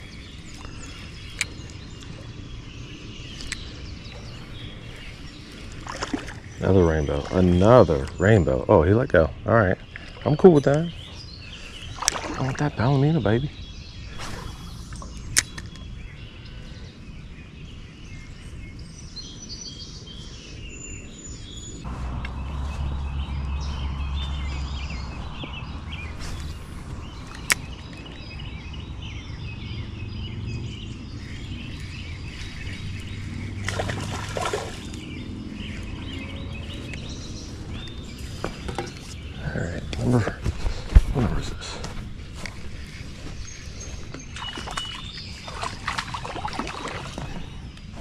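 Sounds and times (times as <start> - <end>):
birds chirping: 0.0 - 48.0
outdoor background noise: 0.0 - 48.0
low rumble: 21.8 - 38.4.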